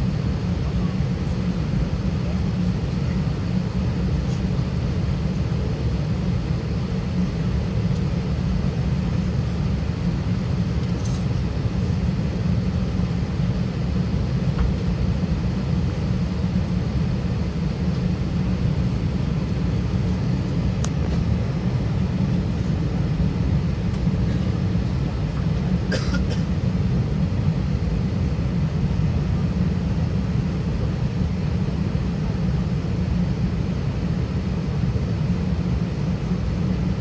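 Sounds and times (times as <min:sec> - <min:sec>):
airplane cabin rumble: 0:00.0 - 0:37.0.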